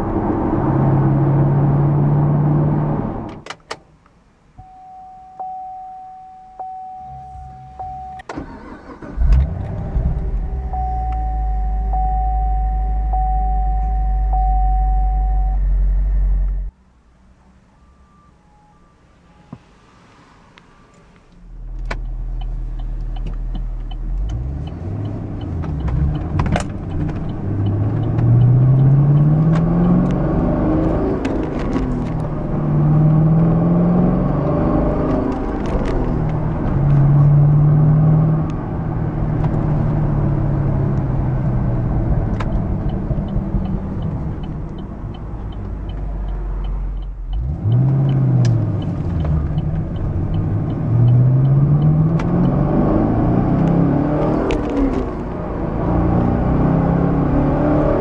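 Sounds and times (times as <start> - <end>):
car engine accelerating: 0.0 - 3.4, 7.0 - 16.7, 21.5 - 58.0
faint regular ticking: 42.8 - 52.6.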